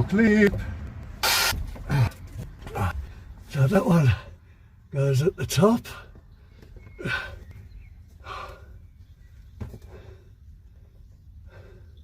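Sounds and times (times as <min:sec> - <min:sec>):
man breathing hard through nose: 0:06.3 - 0:12.0.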